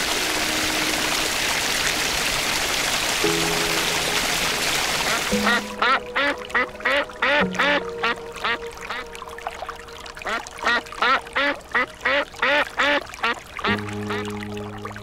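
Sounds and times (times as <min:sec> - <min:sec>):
ducks quacking: 0:05.1 - 0:09.0, 0:10.2 - 0:14.3.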